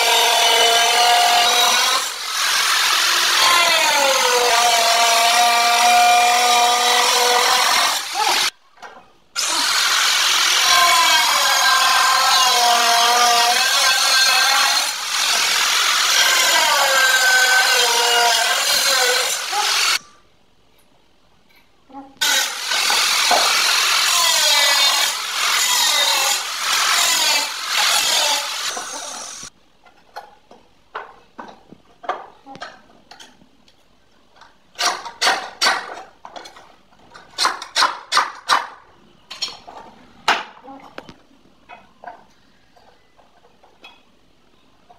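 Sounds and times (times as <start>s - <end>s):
power tool cutting: 0.0s - 8.5s, 9.4s - 20.0s, 22.2s - 29.5s.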